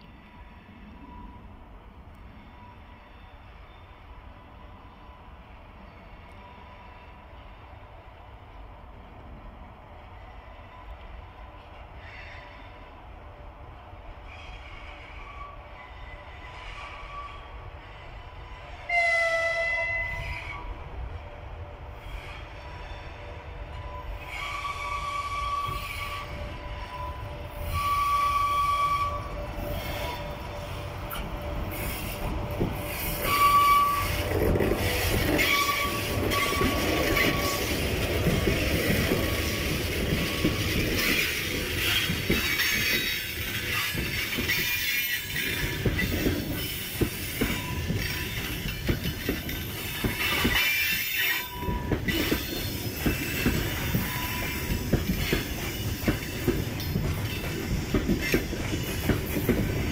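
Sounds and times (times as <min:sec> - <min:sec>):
train wagons rumbling on rails: 0:00.0 - 0:59.9
locomotive horn blasts: 0:18.8 - 0:20.6, 0:23.9 - 0:32.4, 0:33.0 - 0:37.8.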